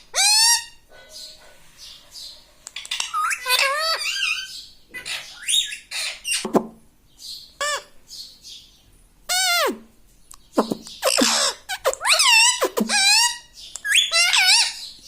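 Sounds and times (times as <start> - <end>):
parrot squawks and chirps: 0.0 - 6.6, 7.5 - 8.0, 9.3 - 9.8, 10.6 - 15.0.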